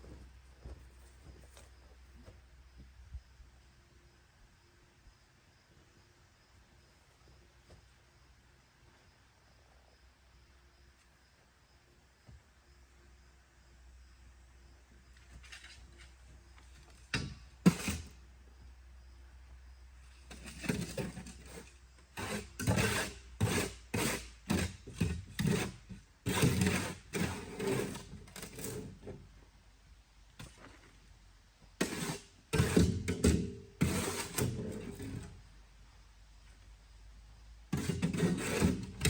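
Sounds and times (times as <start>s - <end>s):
knocks clunks and scrapes: 15.3s - 18.1s, 20.3s - 29.3s, 31.8s - 35.4s, 37.8s - 39.0s.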